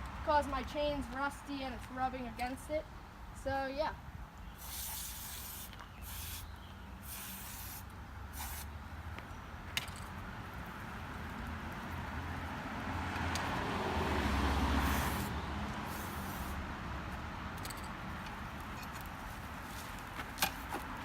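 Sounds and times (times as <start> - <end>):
aerosol spray hissing: 4.6 - 7.8, 8.4 - 8.7, 14.8 - 15.3, 15.9 - 16.6.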